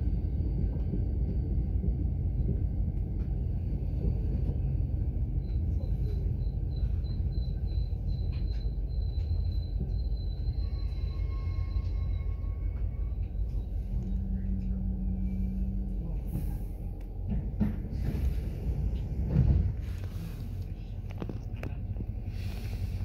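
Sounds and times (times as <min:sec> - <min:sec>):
train rumbling: 0:00.0 - 0:23.0
high-pitched pulsing whine: 0:05.4 - 0:16.3.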